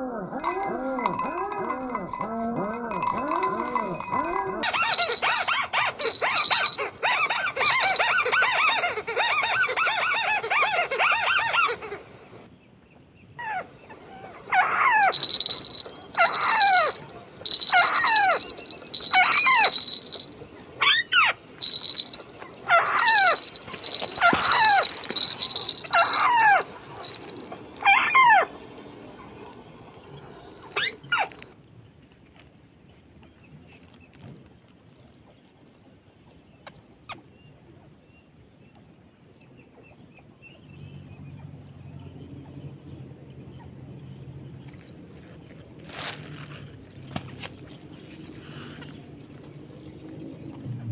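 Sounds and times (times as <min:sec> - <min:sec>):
crake calls: 0:04.6 - 0:10.0, 0:14.6 - 0:29.6.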